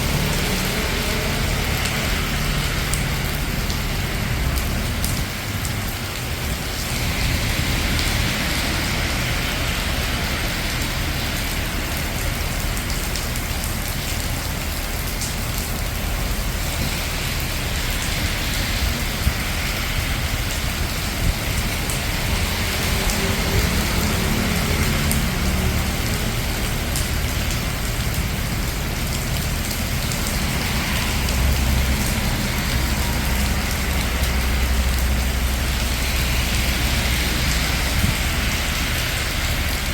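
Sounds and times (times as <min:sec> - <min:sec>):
cars passing on wet road: 0:00.0 - 0:39.9
low traffic rumble: 0:00.0 - 0:39.9
rain falling on street: 0:00.0 - 0:39.9
vehicle engine humming: 0:21.8 - 0:39.9.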